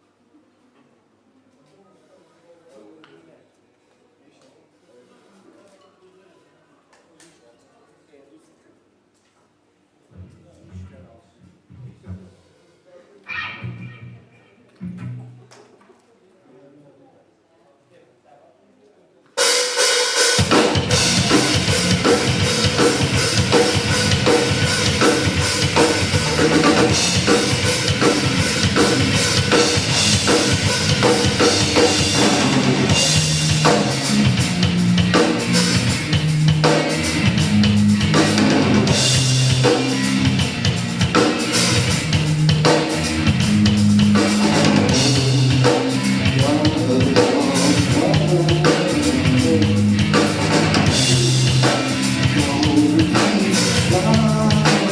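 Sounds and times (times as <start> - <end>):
rock band playing: 19.4 - 54.9
low bass line: 20.8 - 54.9.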